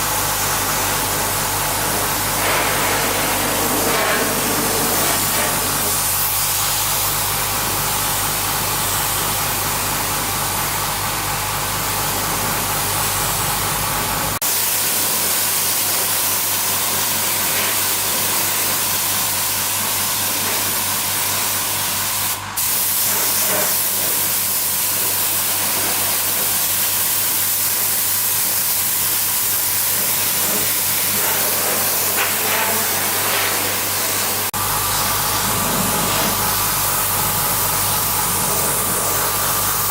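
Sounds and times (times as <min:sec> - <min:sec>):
compressed air spraying hiss: 0:00.0 - 0:07.2, 0:14.4 - 0:39.9
low motor hum: 0:34.0 - 0:39.9.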